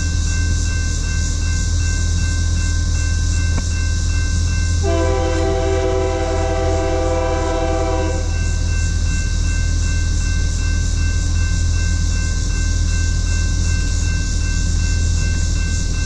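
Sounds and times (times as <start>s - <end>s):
locomotive air horn: 4.8s - 8.4s.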